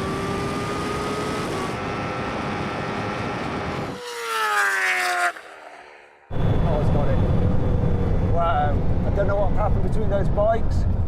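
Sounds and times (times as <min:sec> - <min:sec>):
engine tone rising in pitch: 0:00.0 - 0:08.6
wind and road noise: 0:00.0 - 0:11.0.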